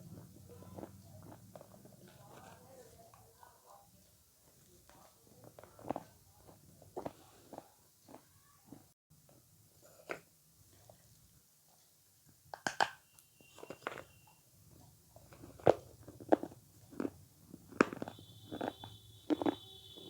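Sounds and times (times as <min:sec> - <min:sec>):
wet chewing: 0:00.0 - 0:03.4, 0:04.4 - 0:08.9, 0:13.4 - 0:20.0
biting into food: 0:15.2 - 0:20.0.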